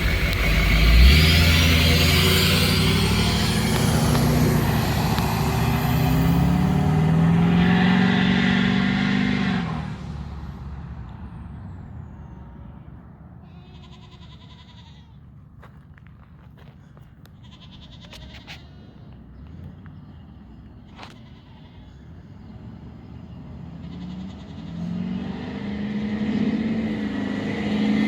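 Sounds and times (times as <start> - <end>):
loud diesel engine running: 0.0 - 8.1.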